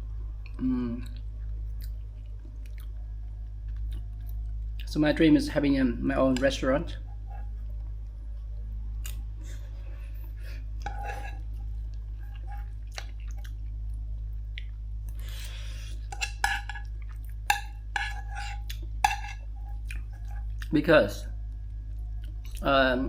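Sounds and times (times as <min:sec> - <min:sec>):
steady low hum: 0:00.0 - 0:23.0
person chewing food: 0:01.8 - 0:03.0, 0:10.2 - 0:13.8, 0:14.5 - 0:20.7.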